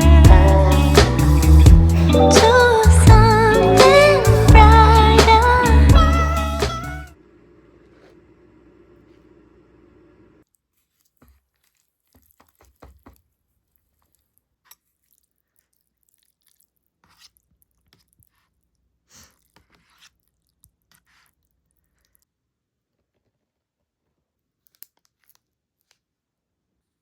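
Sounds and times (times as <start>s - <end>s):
background music: 0.0s - 7.1s.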